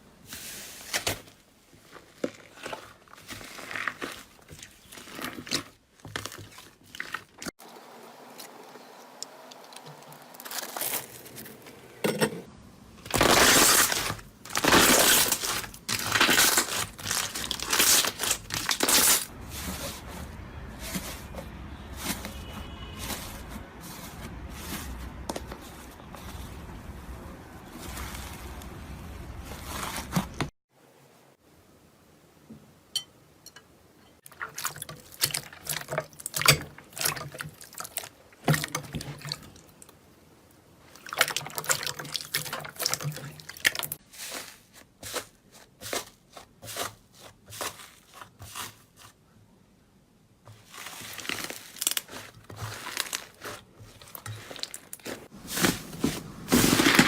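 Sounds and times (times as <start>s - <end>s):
slime squelching: 1.8s - 7.6s, 13.1s - 26.6s, 34.3s - 40.0s, 40.8s - 49.3s, 50.5s - 57.0s.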